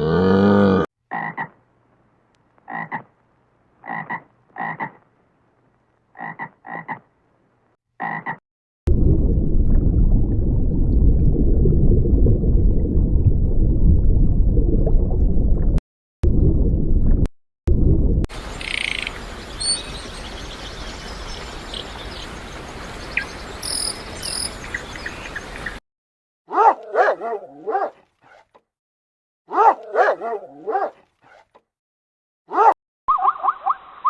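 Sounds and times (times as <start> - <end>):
frog croaking: 2.6 - 3.1, 3.8 - 5.0, 6.2 - 7.0, 8.0 - 8.4, 18.4 - 19.9, 23.6 - 24.6
loud dense low sound: 8.9 - 18.2.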